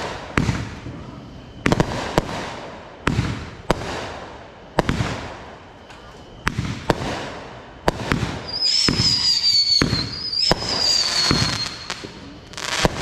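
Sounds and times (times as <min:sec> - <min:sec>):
crackling hiss: 0:00.0 - 0:13.0
firework bangs: 0:00.0 - 0:13.0
firework whistles: 0:00.0 - 0:13.0.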